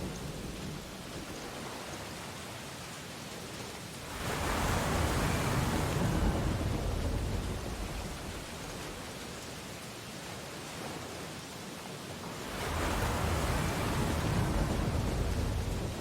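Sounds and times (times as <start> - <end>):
surf hiss: 0.0 - 16.0
wave breaking and rushing: 12.4 - 16.0.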